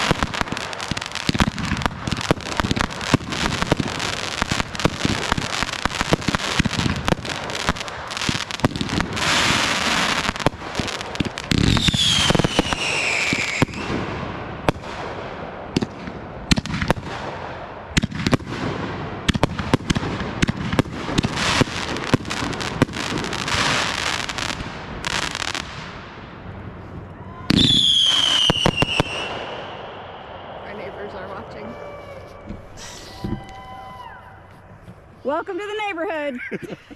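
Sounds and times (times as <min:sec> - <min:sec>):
fireworks bangs and crackling: 0:00.0 - 0:36.1
firework falling whistle: 0:11.7 - 0:14.0, 0:27.2 - 0:29.8, 0:30.6 - 0:34.6.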